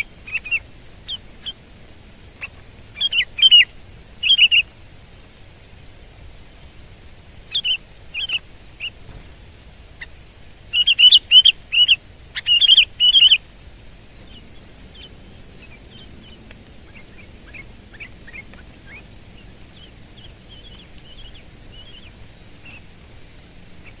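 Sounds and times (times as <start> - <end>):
bird singing bubbly phrases: 2.4 - 4.7, 7.5 - 10.1, 10.7 - 13.4, 14.0 - 22.8
faint bird chirps: 2.4 - 4.7, 7.5 - 10.1, 10.7 - 13.4, 14.1 - 22.9.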